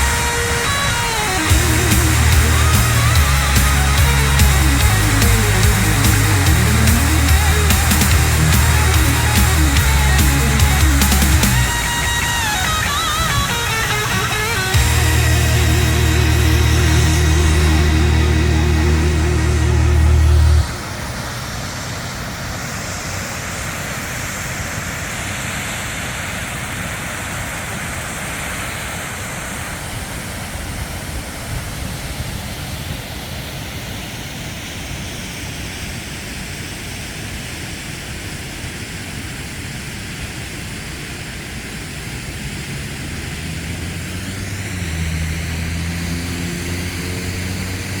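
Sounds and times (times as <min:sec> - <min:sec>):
motorcycle engine drone: 0:00.0 - 0:21.6, 0:41.6 - 0:48.0
low steady hum: 0:14.8 - 0:21.3.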